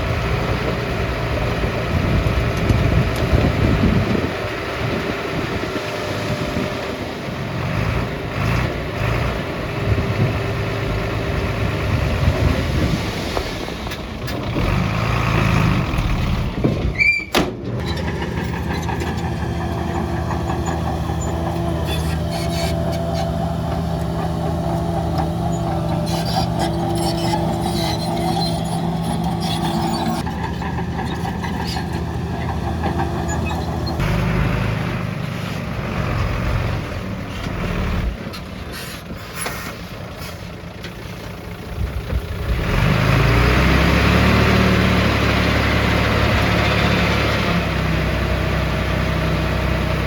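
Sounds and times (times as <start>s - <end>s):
diesel engine drone: 0.0s - 50.0s
labouring heavy machinery engine: 0.0s - 50.0s.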